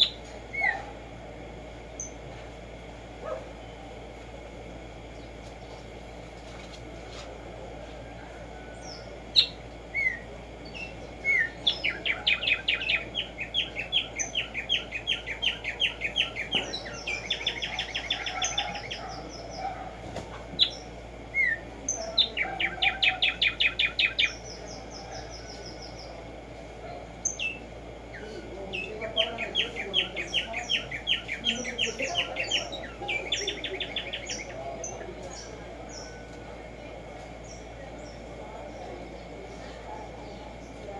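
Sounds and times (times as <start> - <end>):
sparrow singing sharp repeated notes: 0.0 - 0.9, 8.8 - 20.0, 20.6 - 26.2, 27.2 - 36.2
thinner higher bird song: 0.0 - 0.9, 1.7 - 2.4, 8.6 - 19.9, 20.6 - 36.4.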